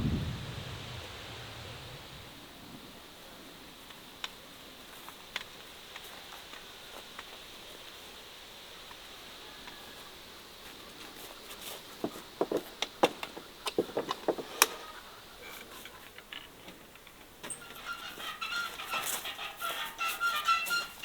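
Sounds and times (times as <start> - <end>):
hens clucking: 9.4 - 16.9, 17.5 - 21.0
sharp clicks and knocks: 12.0 - 14.8.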